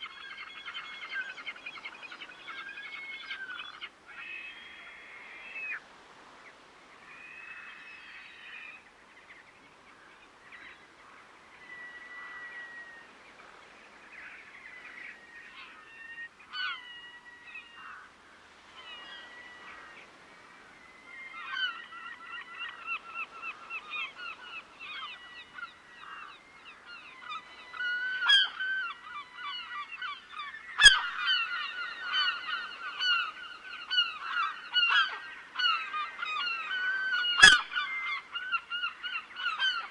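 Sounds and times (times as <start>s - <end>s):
geese honking: 37.3s - 37.7s.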